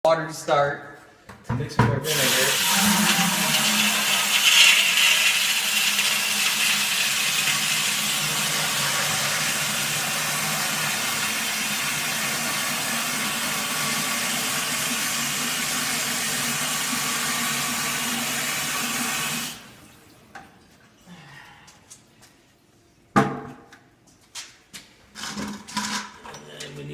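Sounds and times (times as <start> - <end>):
tap water running into bucket: 2.0 - 20.5.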